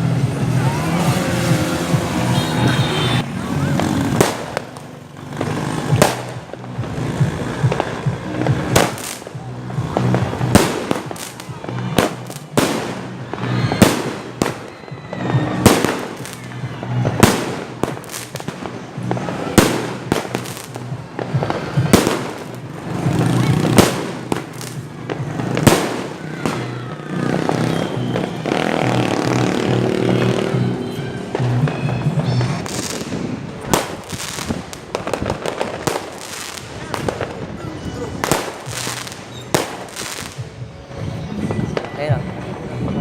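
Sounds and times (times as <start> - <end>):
fireworks banging: 0.0 - 43.0.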